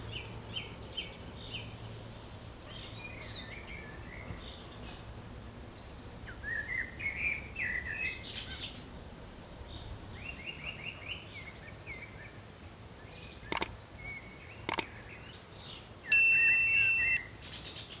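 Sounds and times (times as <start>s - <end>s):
small birds chirping: 13.5s - 13.7s, 16.1s - 18.0s
sharp clicks: 13.5s - 13.8s, 14.7s - 14.9s
loud steady high tone: 16.1s - 17.3s.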